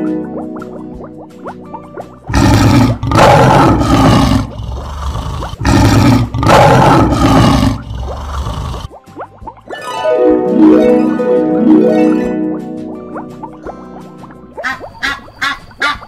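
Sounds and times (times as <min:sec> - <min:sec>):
lion growl: 0:02.3 - 0:08.9
lion roaring: 0:02.3 - 0:08.9.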